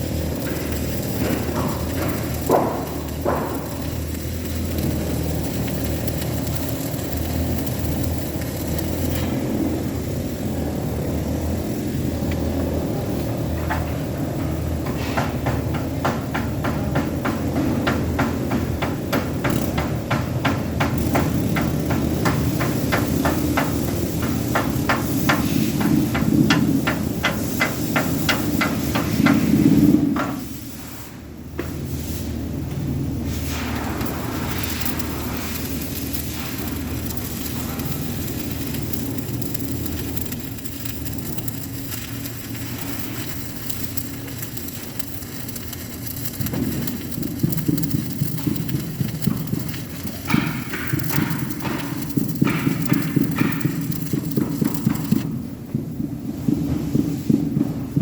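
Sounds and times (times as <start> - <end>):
low running hum: 0.0 - 58.0.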